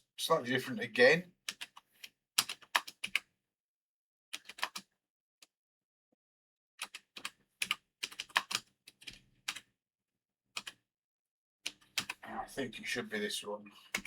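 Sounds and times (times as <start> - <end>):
computer keyboard typing: 1.5 - 1.8, 2.4 - 3.2, 4.4 - 4.9, 6.8 - 9.7, 10.6 - 10.8, 11.7 - 12.2.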